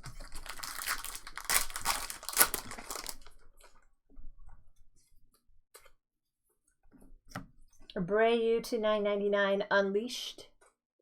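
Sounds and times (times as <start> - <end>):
cards rustling and ticking: 0.0 - 3.3
wrapper tearing and crinkling: 0.0 - 3.4.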